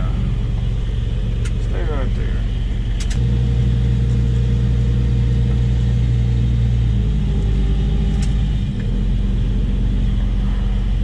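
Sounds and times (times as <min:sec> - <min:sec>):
engine humming: 0:00.0 - 0:11.0
sharp click: 0:02.9 - 0:03.2, 0:08.1 - 0:08.4.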